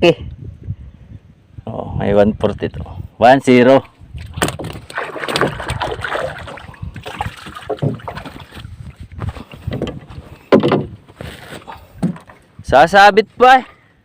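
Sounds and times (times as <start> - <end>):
water splashing: 4.2 - 9.0
knocks and rubbing in wooden boat: 4.2 - 12.5.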